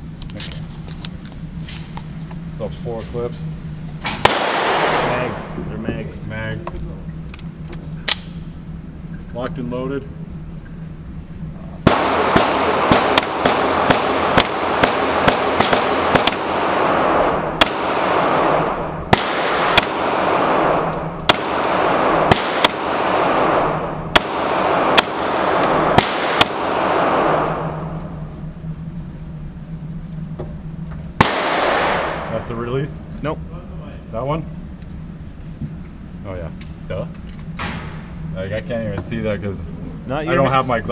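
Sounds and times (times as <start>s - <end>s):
pistol shots with echo: 4.1s - 5.7s, 11.8s - 28.2s, 31.2s - 32.4s.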